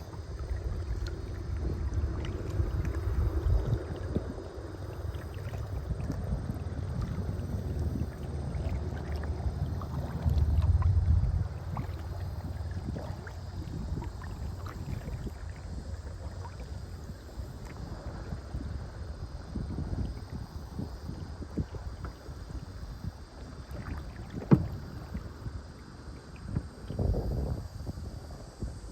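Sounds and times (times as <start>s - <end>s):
water splashes and drips: 0.0s - 18.4s
wind rumbling on microphone: 0.0s - 28.9s.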